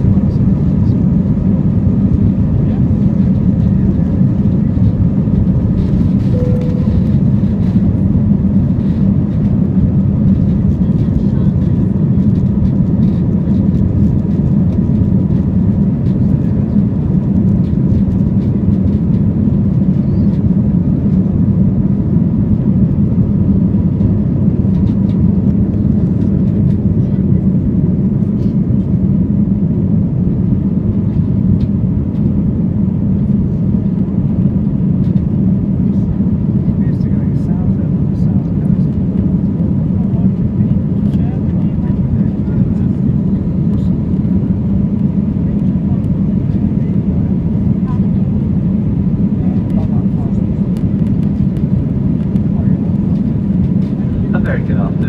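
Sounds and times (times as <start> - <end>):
airliner engines and rushing air: 0.0 - 55.0
faint steady whine: 0.0 - 55.0.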